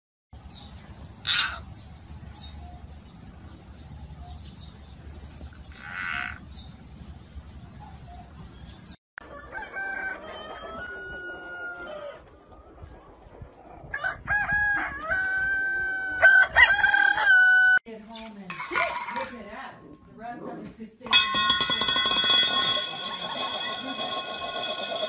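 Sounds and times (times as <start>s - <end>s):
chickens calling: 1.1s - 2.8s, 5.4s - 6.8s
rooster crowing: 9.2s - 12.2s, 14.0s - 17.8s.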